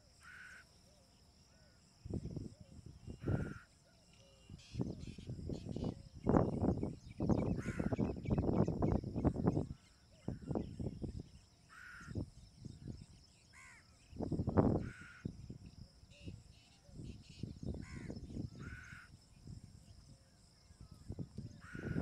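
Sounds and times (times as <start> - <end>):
faint bird chirps: 0.0 - 22.0.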